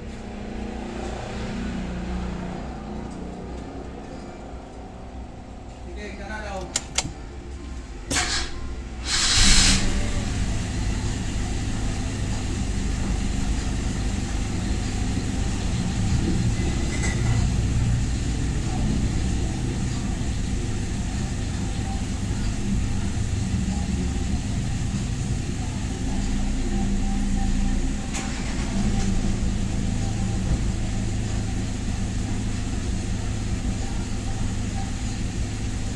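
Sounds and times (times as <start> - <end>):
engine idling: 6.0 - 35.9
pickup engine starting: 6.6 - 7.4, 8.1 - 35.9.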